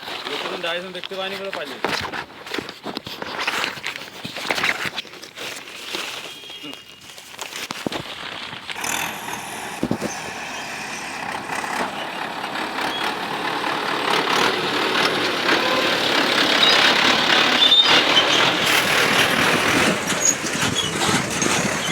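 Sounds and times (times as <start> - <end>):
heavy diesel machinery running: 8.8 - 21.9.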